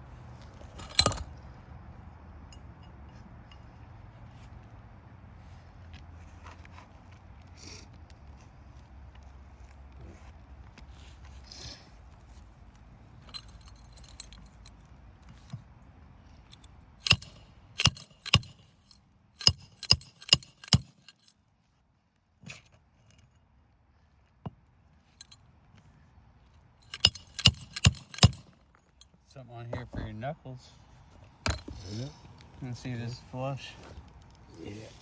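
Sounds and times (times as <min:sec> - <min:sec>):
hammer striking nails: 0:17.0 - 0:18.6, 0:19.4 - 0:21.1, 0:26.9 - 0:28.6, 0:31.4 - 0:31.8.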